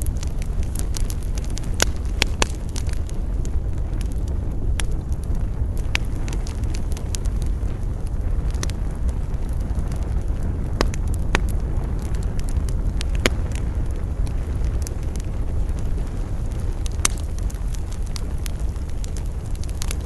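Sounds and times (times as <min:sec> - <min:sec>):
campfire crackling and popping: 0:00.0 - 0:20.0
low rumble of wind: 0:00.0 - 0:20.0.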